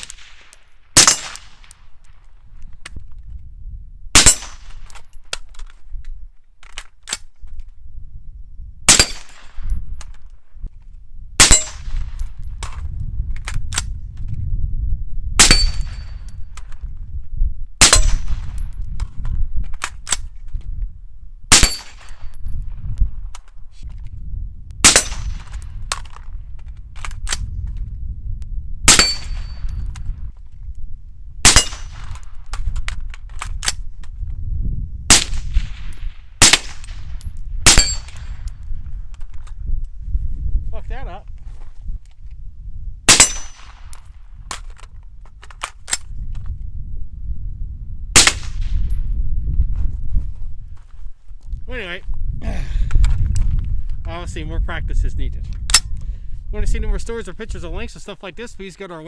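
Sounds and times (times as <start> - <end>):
suppressed rifle shots: 0.0 - 1.9, 4.2 - 5.4, 8.9 - 10.2, 11.4 - 12.8, 15.4 - 16.4, 17.8 - 18.8, 21.5 - 22.6, 24.8 - 26.2, 28.9 - 29.9, 31.4 - 33.8, 35.1 - 38.6, 43.1 - 44.7, 48.2 - 49.0
wind rumble on microphone: 0.0 - 58.8.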